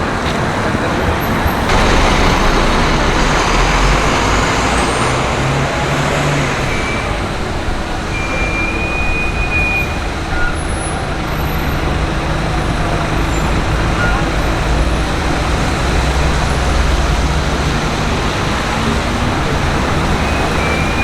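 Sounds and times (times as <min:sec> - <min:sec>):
heavy vehicle engine rumbling: 0:00.0 - 0:21.0
vehicles passing: 0:00.0 - 0:21.0
high squeal: 0:01.7 - 0:11.7.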